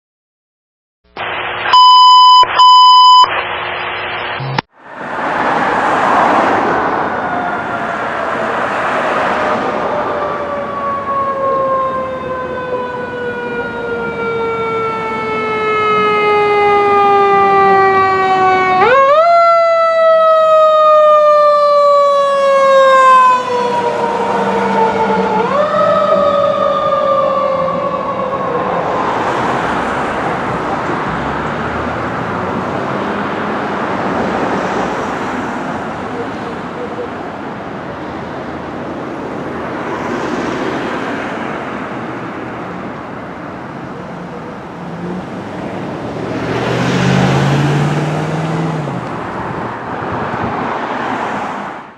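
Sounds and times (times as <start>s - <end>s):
passing truck rushing noise: 4.7s - 43.8s, 44.7s - 51.9s
mechanical siren wailing: 9.4s - 29.0s.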